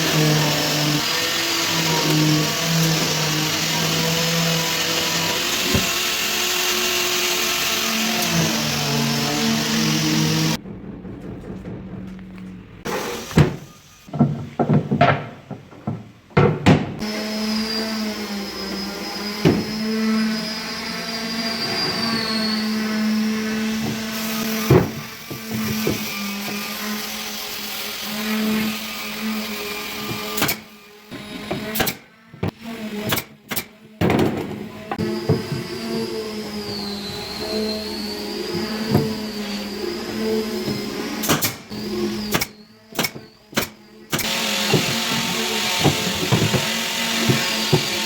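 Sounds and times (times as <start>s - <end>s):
power tool motor whining: 34.8s - 48.0s.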